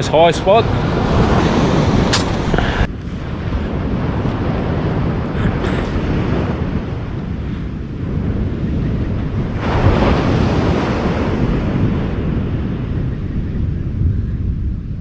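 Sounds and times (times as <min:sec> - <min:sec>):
surf washing onto beach: 0:00.0 - 0:07.2, 0:09.4 - 0:13.0
wave breaking: 0:00.0 - 0:07.2, 0:09.4 - 0:12.9
wind buffeting microphone: 0:00.0 - 0:15.0.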